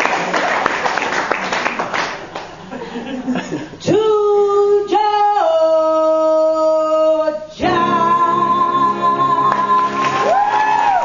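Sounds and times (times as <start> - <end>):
person singing long notes: 3.8 - 10.6.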